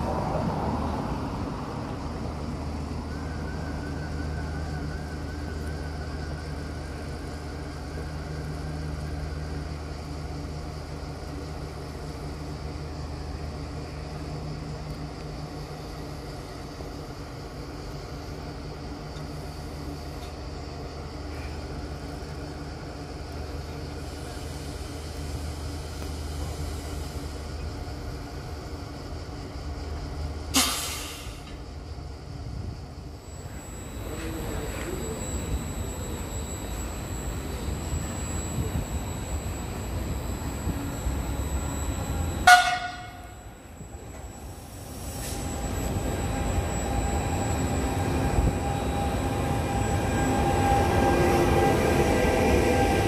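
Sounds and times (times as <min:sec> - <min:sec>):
electric locomotive whine: 0:00.0 - 0:53.0
train rumbling slowly: 0:00.0 - 0:53.0
compressed air hiss: 0:30.6 - 0:31.4.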